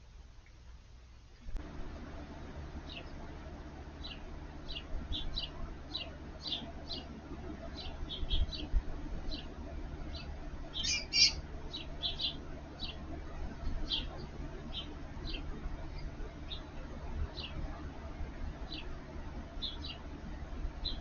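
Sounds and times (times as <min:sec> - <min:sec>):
bird chirping: 0:02.8 - 0:03.2, 0:04.0 - 0:13.1, 0:13.7 - 0:17.8, 0:19.6 - 0:20.1, 0:20.8 - 0:21.0.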